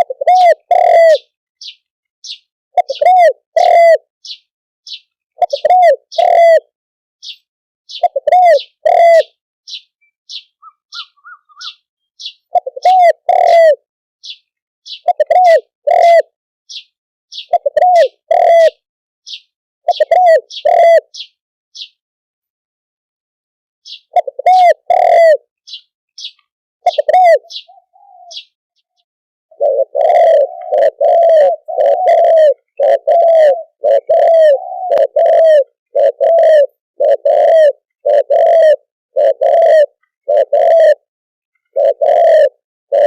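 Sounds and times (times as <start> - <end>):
doves cooing: 0.0 - 1.3, 2.8 - 4.1, 5.4 - 6.7, 7.9 - 9.4, 10.6 - 11.8, 12.5 - 13.8, 15.0 - 16.3, 17.5 - 18.8, 19.9 - 21.2, 24.1 - 25.5, 26.8 - 28.6, 29.5 - 43.0.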